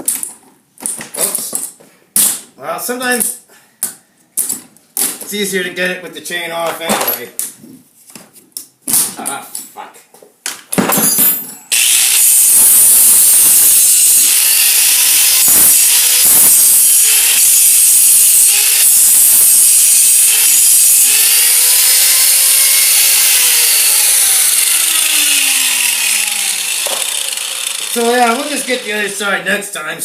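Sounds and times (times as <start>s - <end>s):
power grinder grinding steel: 11.7s - 29.4s.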